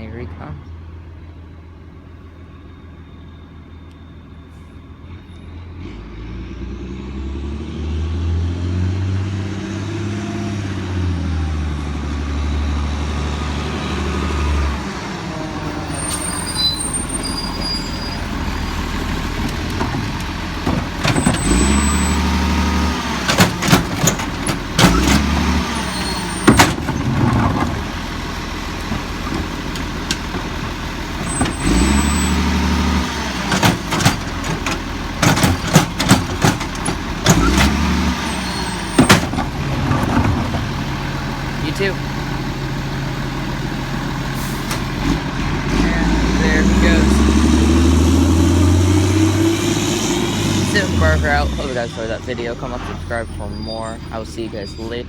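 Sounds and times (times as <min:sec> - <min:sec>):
garbage truck diesel engine: 0:00.0 - 0:55.0
air brakes squealing: 0:02.5 - 0:06.3, 0:15.7 - 0:18.9, 0:25.7 - 0:26.8, 0:31.2 - 0:32.4, 0:38.2 - 0:39.1, 0:44.4 - 0:44.9, 0:52.7 - 0:55.0
bangs and clanks of cart: 0:15.7 - 0:41.3.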